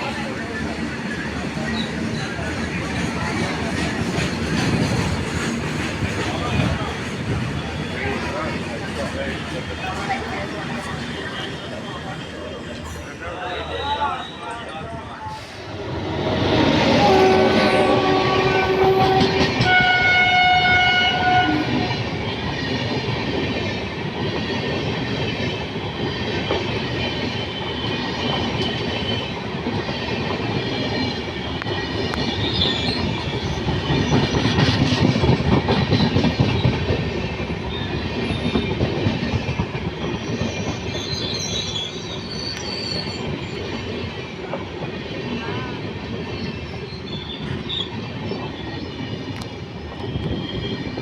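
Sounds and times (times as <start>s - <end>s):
train wheels rumbling on track: 0.0s - 51.0s
high wheel squeal: 10.8s - 20.5s, 32.1s - 34.4s, 40.0s - 43.9s, 46.3s - 49.0s, 49.9s - 51.0s
train horn: 15.9s - 22.1s.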